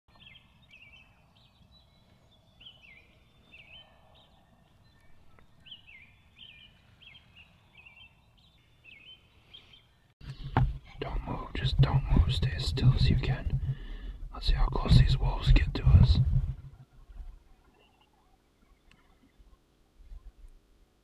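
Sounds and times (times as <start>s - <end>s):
songbird chirping: 0.1s - 20.8s
low background rumble: 10.2s - 17.6s.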